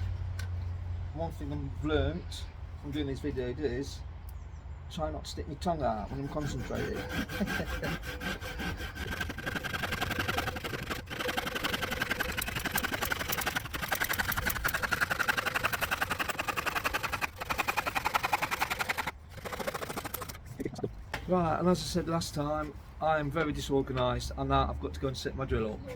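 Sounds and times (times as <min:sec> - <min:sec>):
hand saw cutting board: 0:05.9 - 0:20.5.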